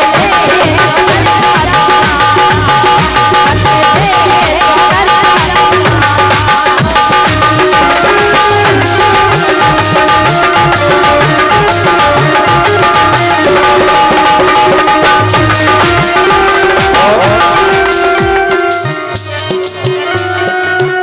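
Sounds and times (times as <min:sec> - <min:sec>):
hand drums: 0:00.0 - 0:21.0
high jingling beat: 0:00.0 - 0:21.0
sustained melody line: 0:00.0 - 0:21.0.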